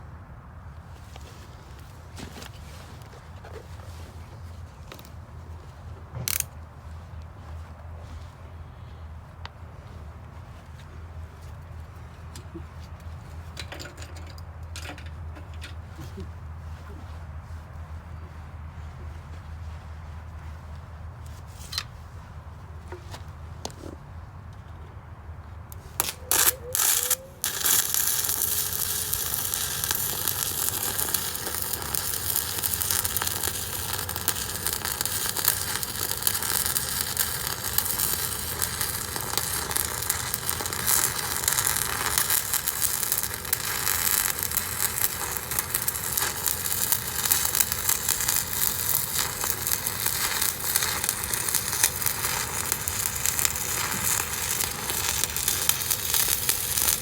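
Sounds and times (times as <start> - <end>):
arc welding crackling sizzle: 6.2 - 6.5, 25.8 - 57.0.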